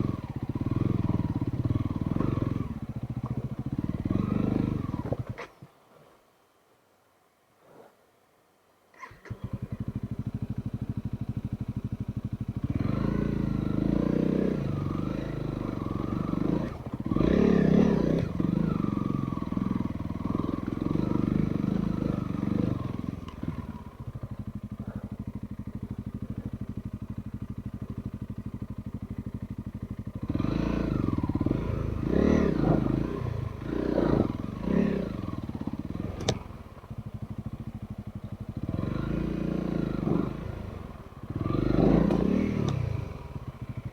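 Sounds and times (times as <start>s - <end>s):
motorcycle engine revving: 0.0s - 5.5s, 9.0s - 43.9s
sharp click: 36.2s - 36.4s.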